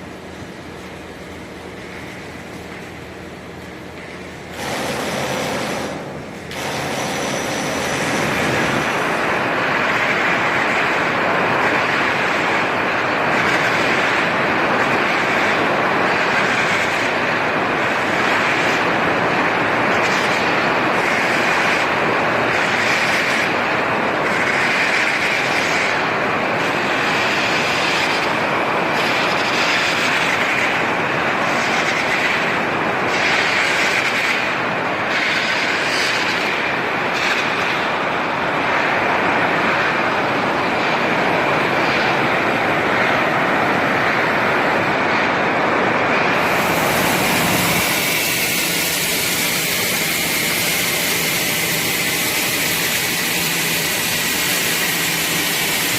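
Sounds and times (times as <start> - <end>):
electric arc welding: 4.0 - 23.6, 46.3 - 55.9
high hiss: 46.0 - 55.9.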